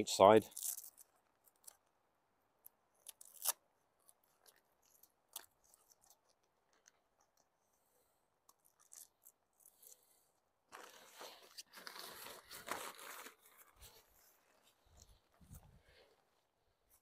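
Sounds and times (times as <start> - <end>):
tent fabric crackling: 8.8 - 17.0.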